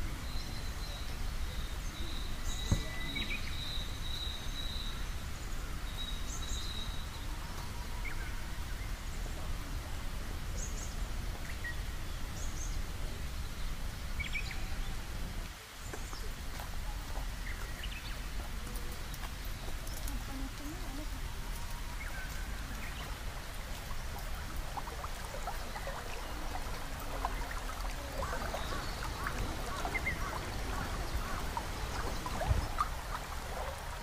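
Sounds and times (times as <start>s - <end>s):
birds chirping: 0.0s - 9.4s, 15.7s - 34.0s.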